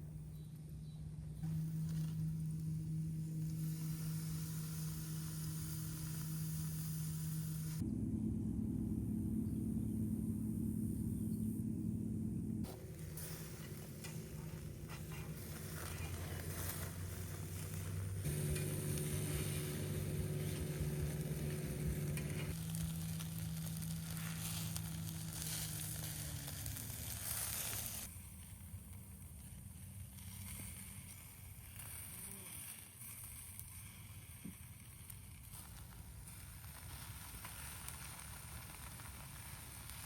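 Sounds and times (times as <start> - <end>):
faint outdoor background: 0.0 - 40.0
rush of air: 1.4 - 7.8, 12.6 - 22.7
electric air pump humming: 1.4 - 28.1.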